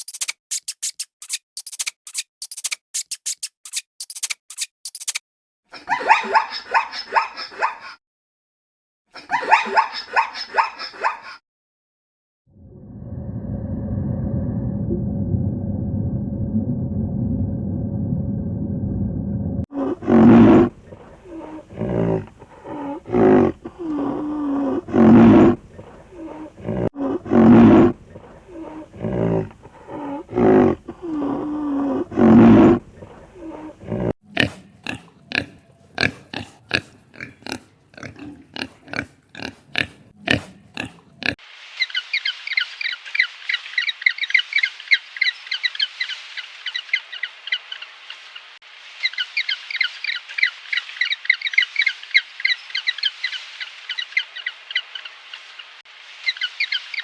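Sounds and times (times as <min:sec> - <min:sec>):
sharp clicks: 0:00.0 - 0:05.2
farm animal pitched calls: 0:05.9 - 0:08.0, 0:09.2 - 0:11.4, 0:19.8 - 0:42.3.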